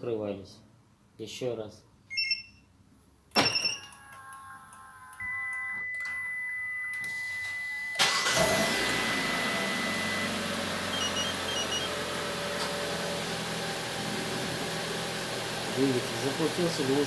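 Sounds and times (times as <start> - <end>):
steady high tone: 3.8 - 12.0
car engine cranking and idling: 8.0 - 17.0.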